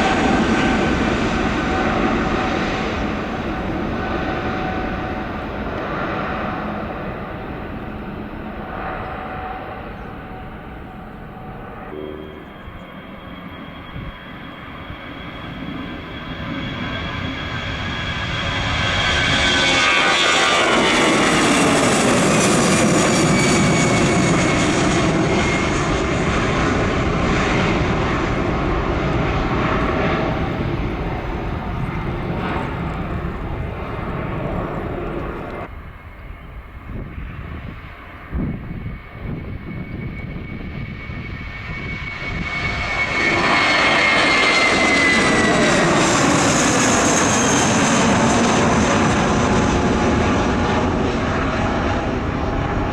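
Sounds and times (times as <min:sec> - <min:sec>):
jet airliner passing with whine: 0:00.0 - 0:52.9.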